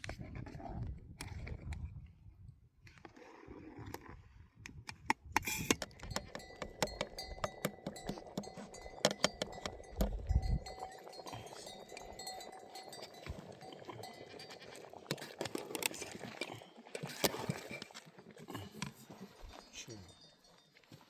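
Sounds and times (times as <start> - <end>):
sharp clicks and knocks: 4.8 - 10.2
animal bells clinking: 5.8 - 16.9, 18.5 - 21.0.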